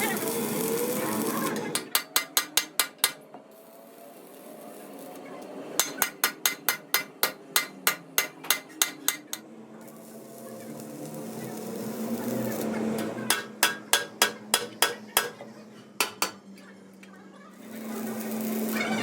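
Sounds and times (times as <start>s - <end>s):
hammer striking metal: 1.7s - 3.3s, 5.8s - 9.4s, 13.3s - 15.4s, 16.0s - 16.4s.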